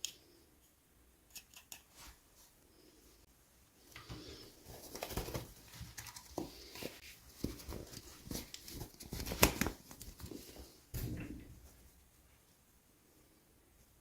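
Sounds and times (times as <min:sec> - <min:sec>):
packaging rustling: 0:04.5 - 0:10.7.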